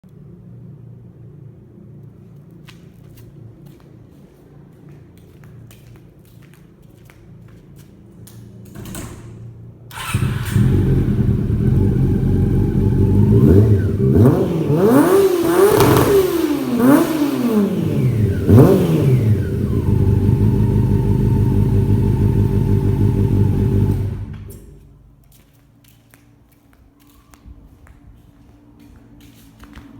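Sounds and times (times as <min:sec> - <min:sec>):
motorcycle engine idling and revving: 0:09.9 - 0:24.9.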